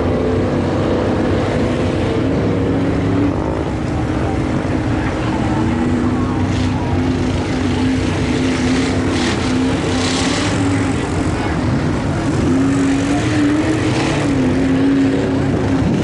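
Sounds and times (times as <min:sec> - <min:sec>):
truck engine running hard: 0:00.0 - 0:16.0.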